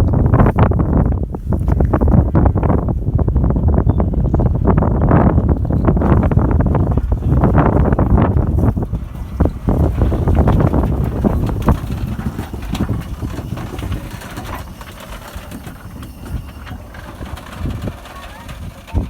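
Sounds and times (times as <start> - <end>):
wind buffeting microphone: 0.0 - 19.0
steam train running: 5.2 - 19.0.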